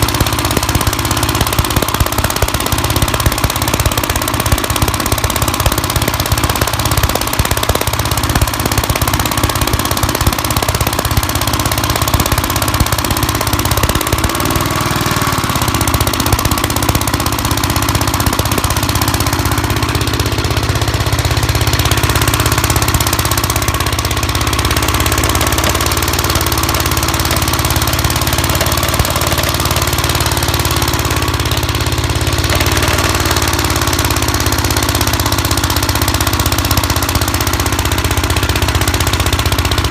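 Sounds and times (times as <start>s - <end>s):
single-cylinder engine knocking: 0.0s - 39.9s.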